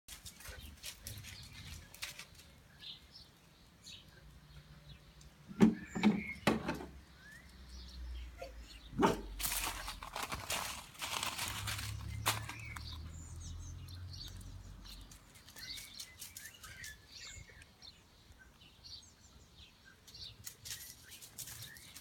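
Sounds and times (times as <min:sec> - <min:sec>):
rustling noise: 0:00.1 - 0:03.0, 0:09.2 - 0:13.1, 0:20.4 - 0:22.0
faint bird chirp: 0:07.1 - 0:09.0.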